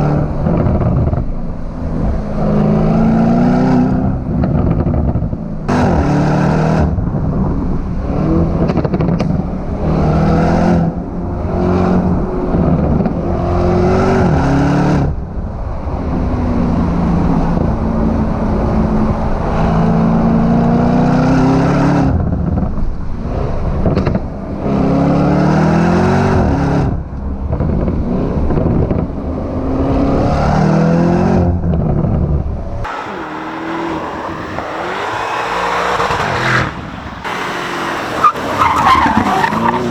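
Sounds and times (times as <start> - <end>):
sports car engine accelerating: 32.7 - 39.9.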